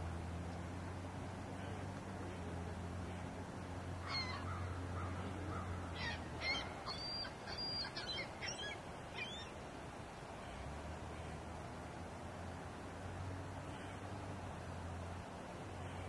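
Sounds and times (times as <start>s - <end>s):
low steady hum: 0.0s - 16.0s
bird calling: 4.0s - 9.6s.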